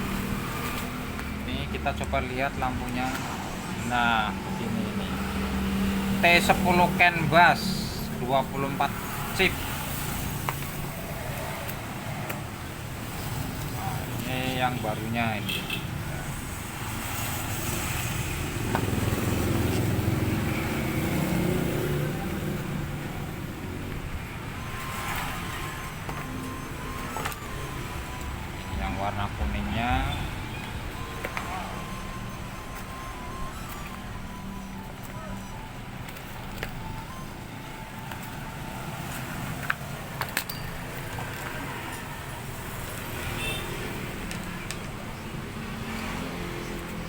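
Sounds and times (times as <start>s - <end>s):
vehicle engine rumble: 18.6s - 37.7s.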